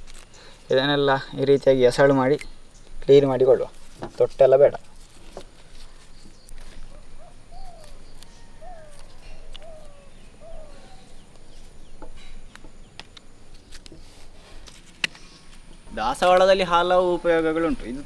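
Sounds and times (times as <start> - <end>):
bird calling: 5.8 - 14.3.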